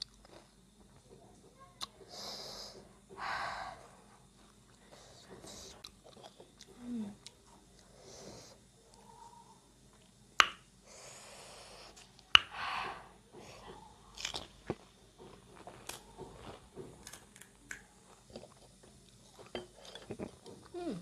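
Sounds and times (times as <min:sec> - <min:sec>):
crisp shells cracking and chewing: 0:05.8 - 0:07.9, 0:14.1 - 0:20.6.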